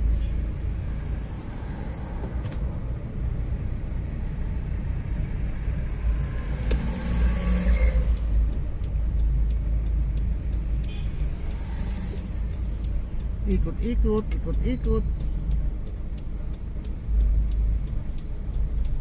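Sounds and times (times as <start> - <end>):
car engine and road rumble: 0.0 - 19.0
faint light ticks: 6.6 - 19.0.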